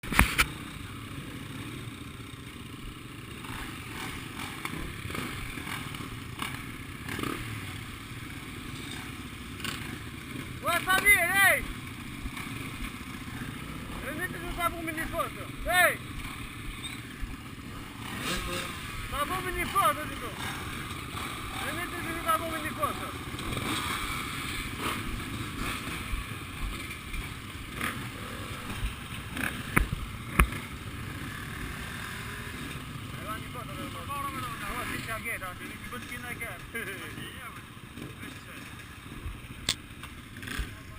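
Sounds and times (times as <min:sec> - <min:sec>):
motocross engines running: 0:00.0 - 0:40.9
sharp clicks: 0:39.6 - 0:39.9.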